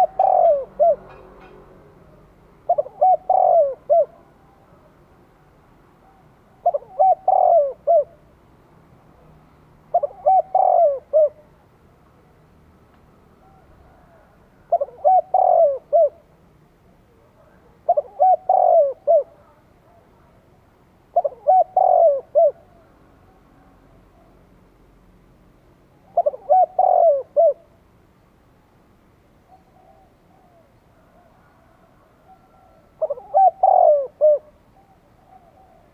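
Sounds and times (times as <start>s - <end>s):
dove cooing: 0.0s - 1.6s, 2.6s - 5.0s, 6.0s - 8.3s, 9.9s - 11.6s, 13.4s - 16.3s, 17.4s - 20.4s, 21.1s - 24.4s, 26.1s - 27.8s, 29.4s - 35.9s.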